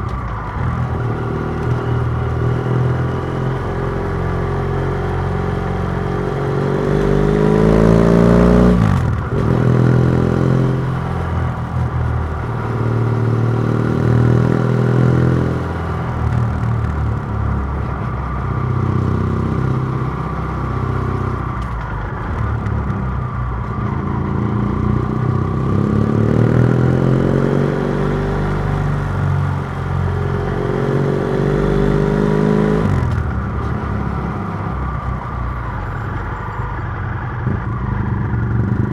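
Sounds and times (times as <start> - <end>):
motorcycle engine under throttle: 0.0 - 38.9.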